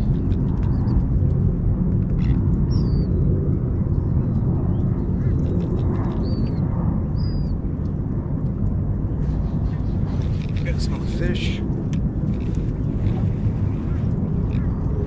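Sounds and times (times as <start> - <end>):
low rumble: 0.0 - 15.0
whistled bird calls: 2.7 - 3.1, 7.2 - 7.5.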